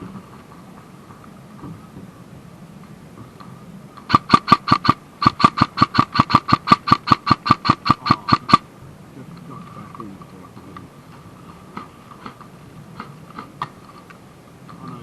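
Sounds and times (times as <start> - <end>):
airsoft gun shots: 4.1 - 8.6.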